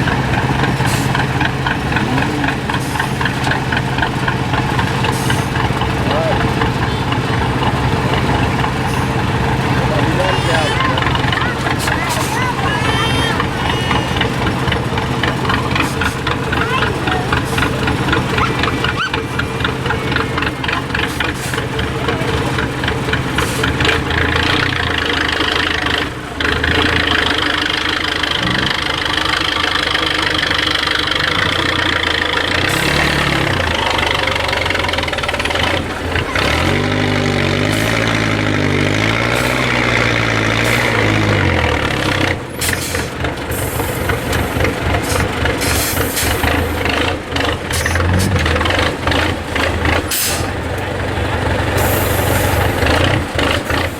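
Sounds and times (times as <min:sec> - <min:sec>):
truck diesel engine revving: 0:00.0 - 0:53.9.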